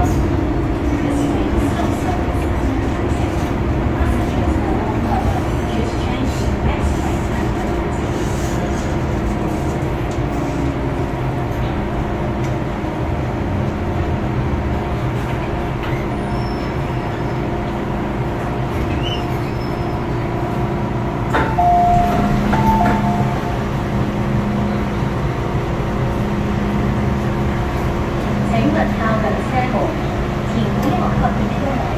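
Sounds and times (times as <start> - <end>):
train wheels rumbling on track: 0.0 - 31.9
steady tone: 21.4 - 25.1.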